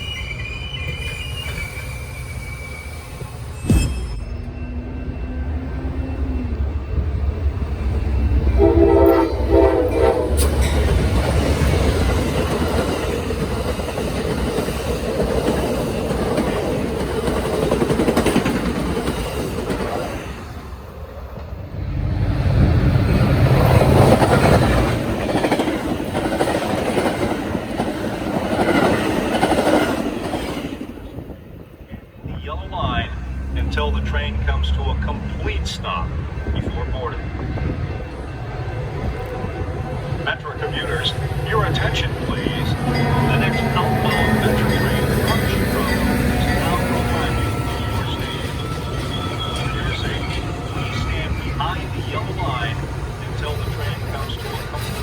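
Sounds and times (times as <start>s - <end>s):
locomotive engine rumble: 4.4s - 55.0s
train horn chord: 8.5s - 10.7s.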